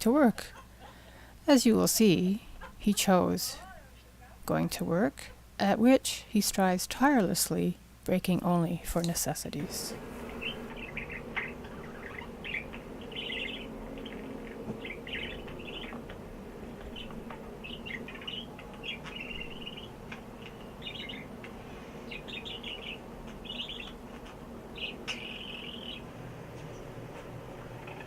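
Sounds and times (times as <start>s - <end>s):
steady low hum: 0.0s - 28.0s
pet bird chirping: 10.3s - 26.1s.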